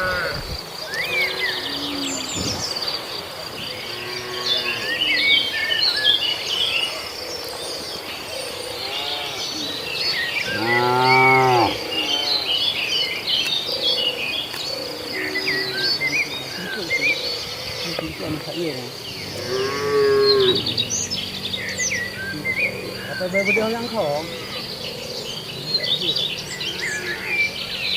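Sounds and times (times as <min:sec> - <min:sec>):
cattle mooing: 0:00.0 - 0:00.5, 0:10.4 - 0:12.6, 0:19.2 - 0:23.0
birds chirping: 0:00.0 - 0:27.9.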